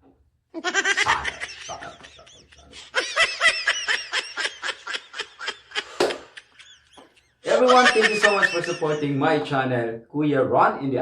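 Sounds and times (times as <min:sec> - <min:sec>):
person giggling: 0:00.6 - 0:09.0.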